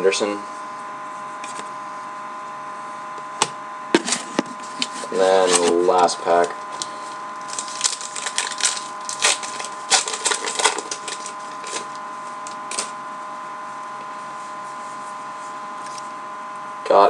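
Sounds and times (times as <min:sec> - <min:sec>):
wrapper crinkling and tearing: 0:07.4 - 0:12.9.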